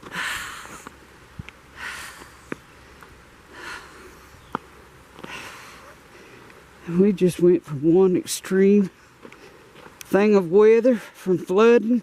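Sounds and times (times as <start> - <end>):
person breathing close to microphone: 0.0 - 1.0, 1.7 - 6.8.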